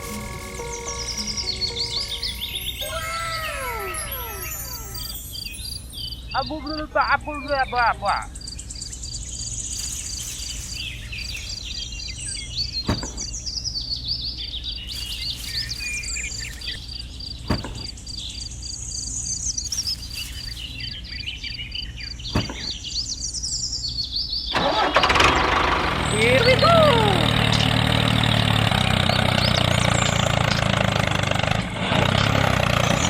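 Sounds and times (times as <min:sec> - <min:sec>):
birds chirping: 0:00.0 - 0:33.0
pulsing insect trill: 0:01.0 - 0:06.0.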